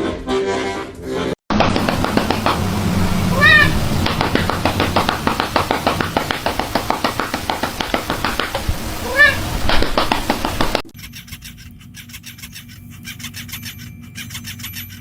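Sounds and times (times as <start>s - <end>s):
rapid clicking: 1.5s - 15.0s
cat meowing: 3.2s - 3.9s, 9.0s - 9.5s.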